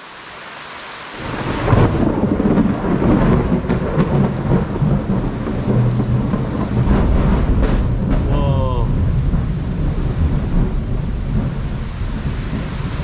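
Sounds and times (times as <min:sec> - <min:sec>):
heavy rain hissing: 0:00.0 - 0:13.0
thunder rumbling: 0:01.2 - 0:13.0.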